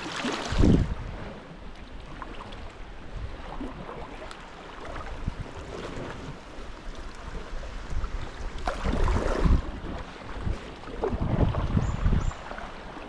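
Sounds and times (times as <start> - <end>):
small splashes: 0.0 - 0.8, 8.5 - 10.0
water sloshing around kayak: 0.0 - 13.0.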